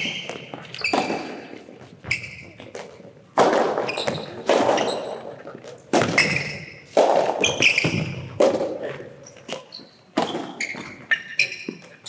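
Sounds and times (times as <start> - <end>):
shoes squeaking on court floor: 0.0 - 3.2, 3.8 - 8.4, 9.2 - 12.0
ball bouncing on court: 0.0 - 8.8, 9.5 - 11.8
tennis ball hit by racket: 0.0 - 8.8.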